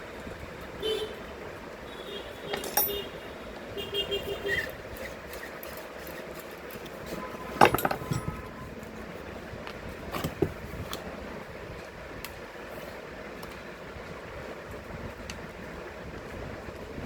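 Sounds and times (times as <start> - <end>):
tools clattering and clinking: 2.5 - 3.1, 7.5 - 8.6.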